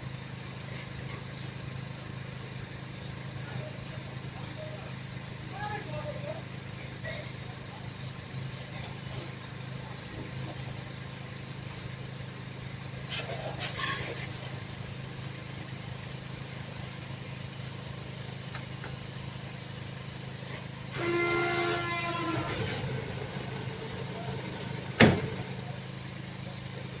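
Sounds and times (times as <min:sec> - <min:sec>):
vehicle engine idling: 0:00.0 - 0:27.0
horn-like tone: 0:20.9 - 0:24.4.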